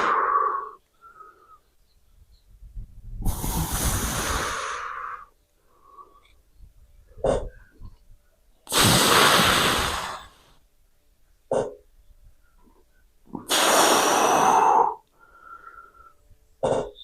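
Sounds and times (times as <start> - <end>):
man breathing hard: 0.0 - 1.7, 3.2 - 6.3, 13.5 - 16.2.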